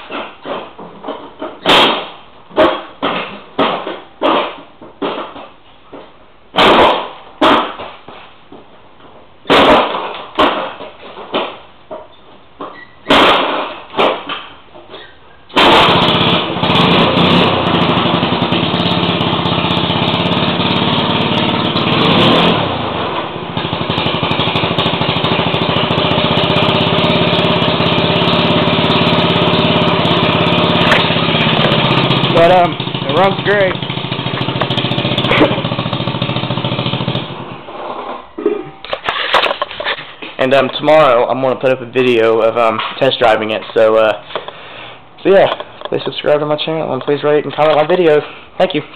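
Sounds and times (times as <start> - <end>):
scooter kickstarter kicks: 0.0 - 40.8
scooter engine running: 15.6 - 37.6.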